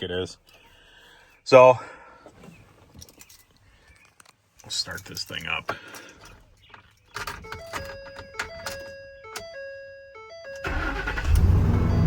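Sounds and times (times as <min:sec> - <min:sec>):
electronic dashboard chime tones: 0:07.5 - 0:11.0, 0:11.6 - 0:12.0
truck engine cranking and idling: 0:10.3 - 0:12.0.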